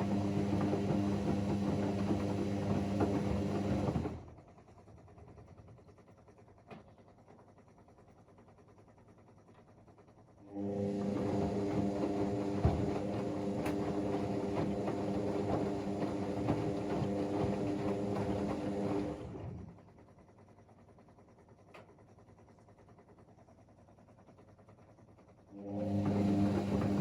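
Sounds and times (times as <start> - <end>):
washing machine drum hum: 0.0 - 4.2, 10.6 - 19.7, 25.6 - 27.0.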